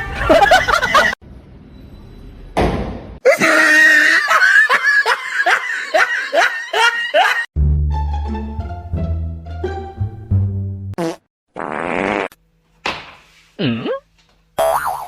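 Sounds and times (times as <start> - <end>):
person laughing hard: 0.1 - 1.2, 3.2 - 7.5.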